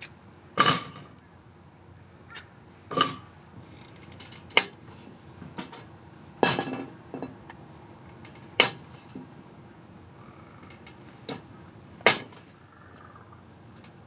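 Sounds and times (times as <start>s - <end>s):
metal cookware clinking: 5.6s - 7.6s, 8.2s - 8.9s.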